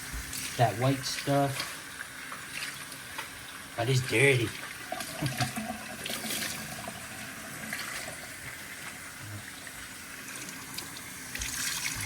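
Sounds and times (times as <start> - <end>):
tap water splashing into pot: 0.0 - 3.5, 4.5 - 6.9, 10.4 - 12.0.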